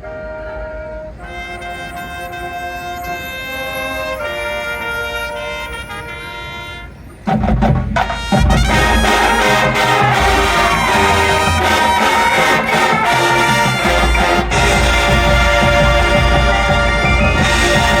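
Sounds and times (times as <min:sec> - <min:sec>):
marching band playing: 0:00.0 - 0:18.0
heavy low drum hits: 0:07.3 - 0:12.0.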